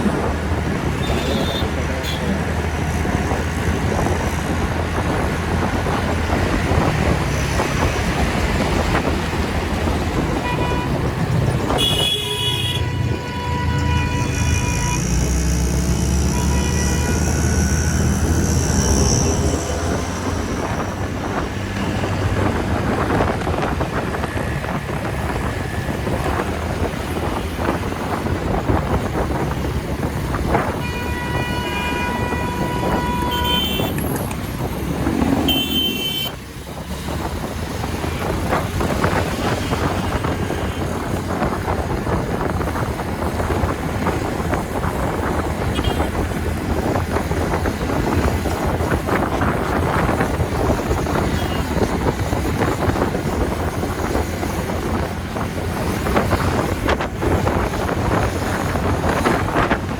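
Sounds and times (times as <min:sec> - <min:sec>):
road noise: 0:00.0 - 0:59.9
wind rushing over microphone: 0:00.0 - 0:59.9
vehicle horn: 0:00.9 - 0:02.3, 0:10.4 - 0:11.1, 0:11.7 - 0:19.6, 0:30.7 - 0:34.1, 0:35.3 - 0:36.4, 0:45.7 - 0:46.3
short higher honks: 0:01.0 - 0:02.3, 0:35.4 - 0:36.4.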